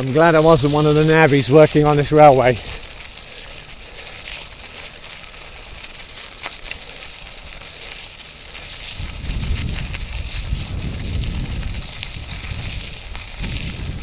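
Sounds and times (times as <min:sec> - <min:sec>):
bike tyres crunching on trail: 0:00.0 - 0:14.0
wind buffeting microphone: 0:08.8 - 0:14.0.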